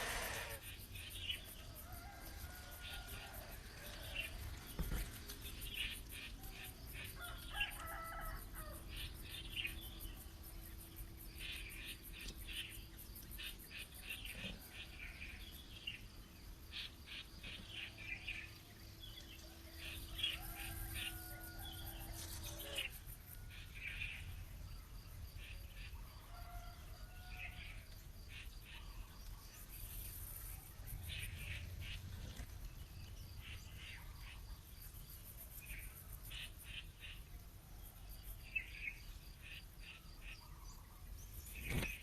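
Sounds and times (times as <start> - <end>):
longer lower bird calls: 0.0 - 3.4.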